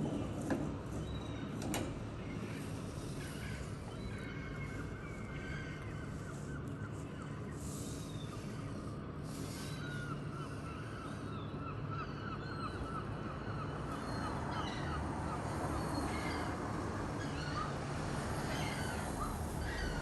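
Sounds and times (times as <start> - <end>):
low background rumble: 0.0 - 15.8.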